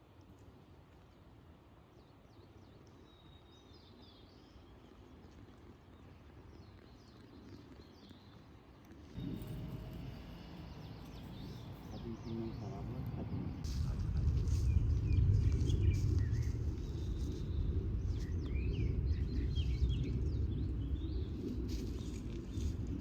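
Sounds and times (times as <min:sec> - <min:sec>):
faint outdoor background noise: 0:00.0 - 0:23.0
small birds chirping: 0:02.0 - 0:23.0
loud low noise: 0:09.2 - 0:21.4.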